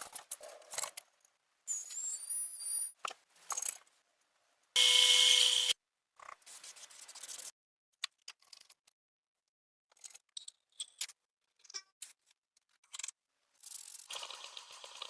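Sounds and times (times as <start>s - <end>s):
clicks and taps of small parts: 9.9s - 13.8s.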